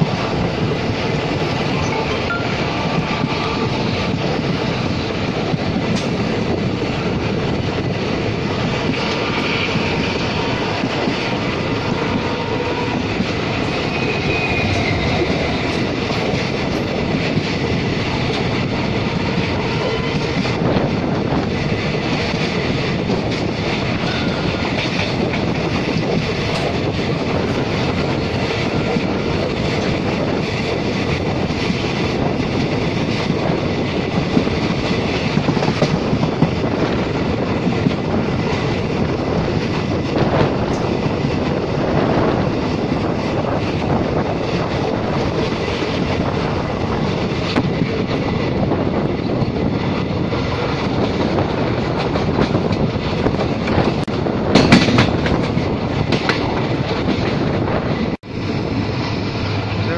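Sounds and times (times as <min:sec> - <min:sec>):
train wheels rumbling on rails: 0:00.0 - 0:59.9
wheels clacking over rail joints: 0:42.6 - 0:57.4.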